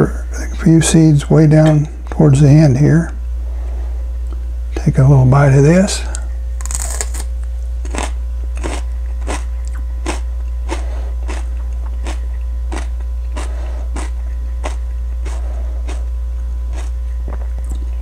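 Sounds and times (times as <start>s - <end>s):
steady low hum: 0.0s - 18.0s
crunchy pepper chewing: 6.0s - 18.0s.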